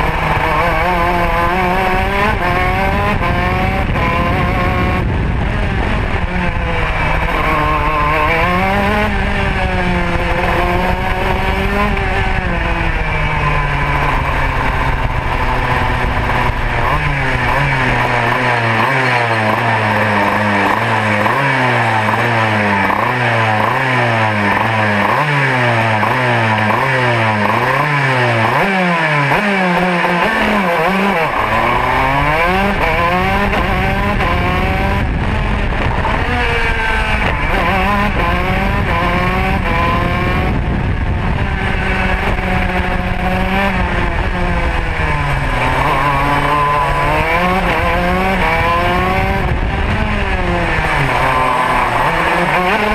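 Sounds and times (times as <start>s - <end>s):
wind on microphone: 0.0s - 18.3s, 31.2s - 52.9s
kart engine revving: 0.0s - 52.9s.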